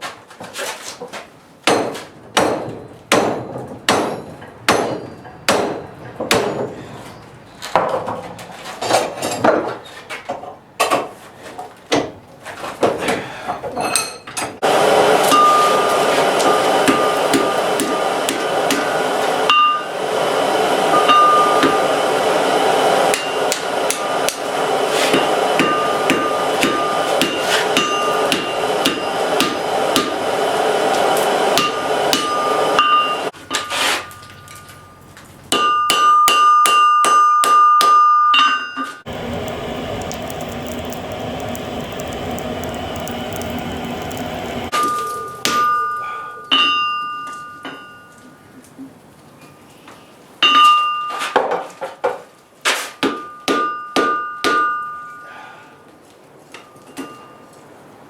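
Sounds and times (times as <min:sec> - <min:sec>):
hammer striking steel on anvil: 0:01.7 - 0:06.8, 0:15.3 - 0:19.9, 0:23.1 - 0:24.4, 0:25.1 - 0:30.2, 0:31.6 - 0:33.7, 0:35.5 - 0:38.6, 0:44.7 - 0:48.0, 0:53.0 - 0:55.3
anvil ringing: 0:25.6 - 0:29.2, 0:44.7 - 0:48.2, 0:53.2 - 0:55.3
steady rushing noise: 0:39.1 - 0:44.7.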